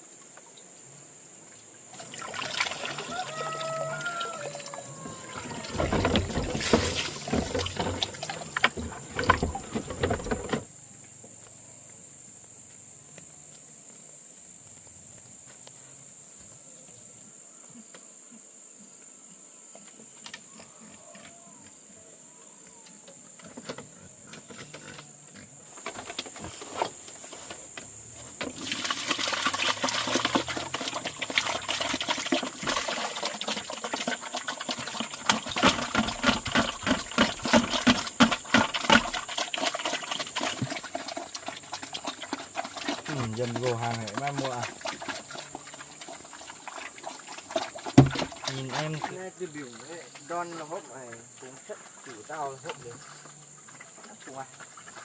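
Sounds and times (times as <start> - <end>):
water splashing and pouring: 1.8 - 10.6, 28.2 - 55.0.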